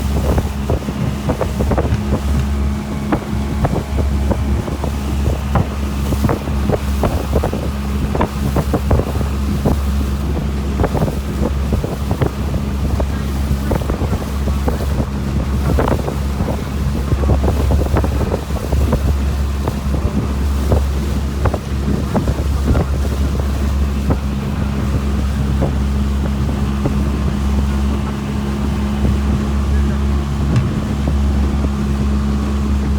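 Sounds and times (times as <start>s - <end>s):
hull slapping waves: 0.0s - 32.9s
motorboat engine drone: 0.0s - 32.9s
wind buffeting microphone: 0.0s - 32.9s
short knocks and slaps: 0.7s - 3.9s, 30.4s - 31.5s.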